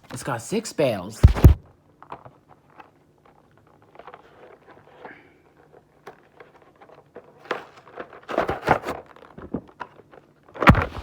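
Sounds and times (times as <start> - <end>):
packaging rustling and clicking: 1.2 - 11.0
sharp loud plastic crackle: 6.2 - 11.0.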